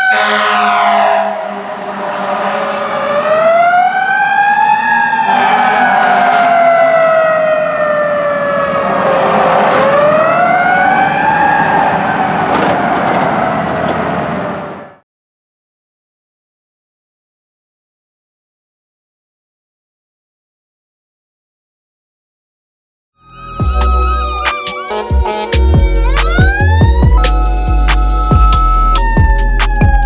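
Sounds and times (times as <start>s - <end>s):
fire engine siren wailing: 0.0s - 15.0s, 23.2s - 30.0s
truck rumble passing: 0.0s - 15.0s, 23.3s - 30.0s.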